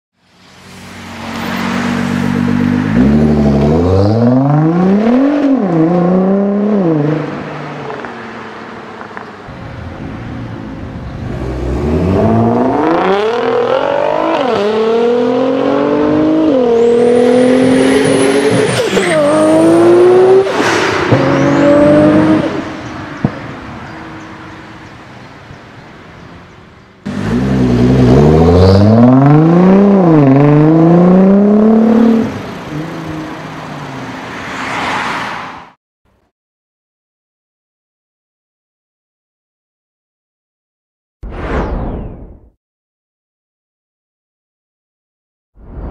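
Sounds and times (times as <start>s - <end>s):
car engine accelerating hard: 27.1s - 33.5s.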